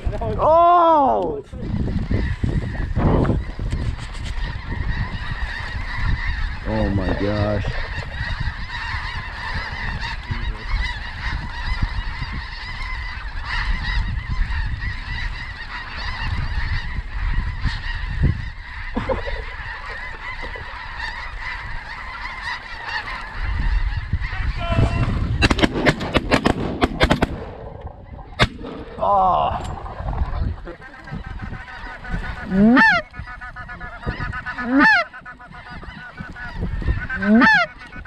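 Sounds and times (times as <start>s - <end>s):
flock of geese honking: 1.6s - 28.5s, 29.6s - 38.0s
shotgun blasts: 25.4s - 29.0s.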